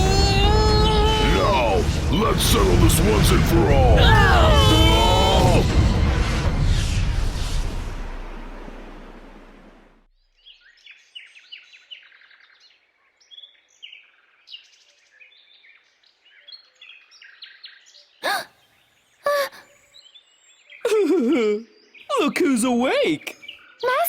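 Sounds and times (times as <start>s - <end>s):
loud crash: 0.0s - 10.0s
birds chirping and twittering: 10.2s - 20.9s, 21.6s - 24.0s
short vocal sounds: 18.2s - 18.5s, 19.3s - 19.6s.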